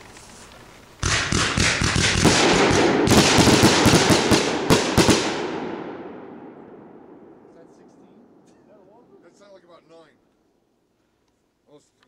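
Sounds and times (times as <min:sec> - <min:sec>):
fireworks cracking and popping: 0:00.0 - 0:05.4.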